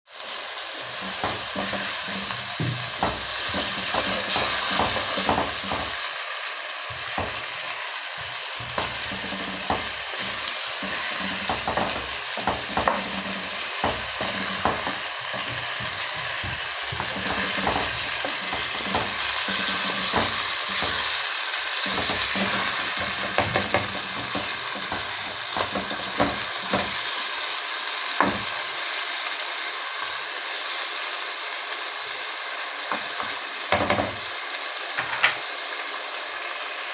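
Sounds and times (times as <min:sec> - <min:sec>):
chicken sizzling in a pot: 0:00.1 - 0:36.9
pot clanking and scraping: 0:00.8 - 0:06.1, 0:06.9 - 0:27.1, 0:32.9 - 0:34.3, 0:35.0 - 0:35.5.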